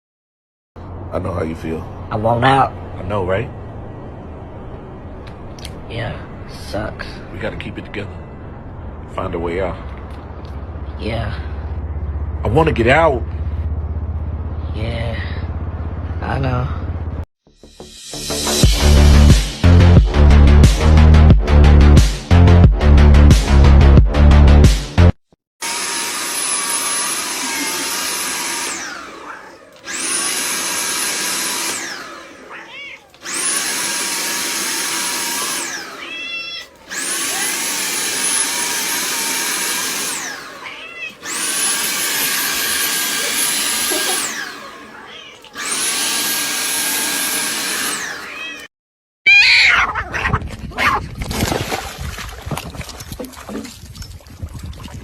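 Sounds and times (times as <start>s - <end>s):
vacuum cleaner motor running: 25.6s - 48.7s
cat meowing: 32.4s - 33.2s, 35.8s - 37.5s, 40.5s - 41.3s, 44.8s - 45.6s, 48.2s - 48.7s, 49.3s - 51.0s
loud rough noise: 36.9s - 40.6s, 41.2s - 45.0s, 45.6s - 48.4s.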